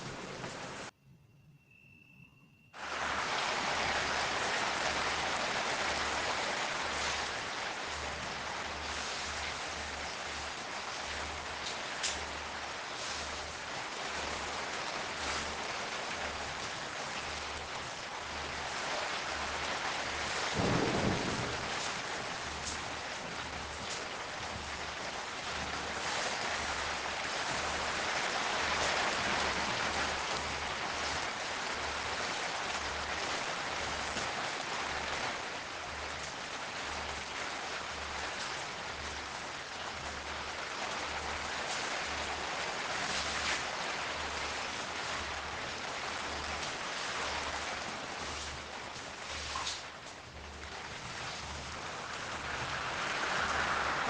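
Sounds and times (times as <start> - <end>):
steady rain falling: 0.0 - 0.9, 2.8 - 54.0
low rumble of thunder: 16.3 - 34.1.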